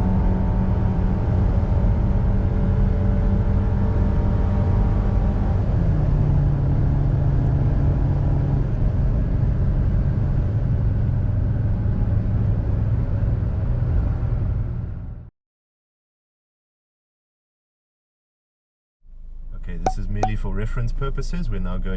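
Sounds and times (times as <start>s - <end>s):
road and wind noise: 0.0s - 15.3s.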